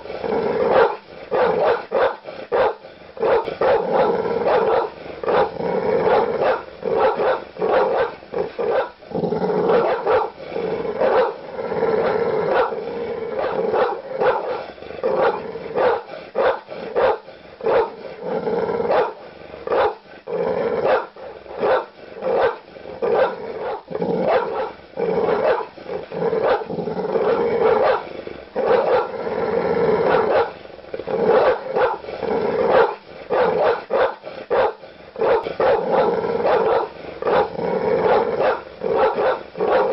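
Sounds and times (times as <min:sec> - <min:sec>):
large dogs barking aggressively: 0:00.0 - 0:39.9.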